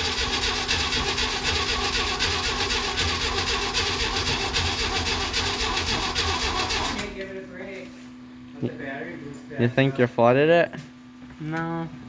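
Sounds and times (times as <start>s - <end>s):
engine cranking on starter motor: 0.0s - 7.2s.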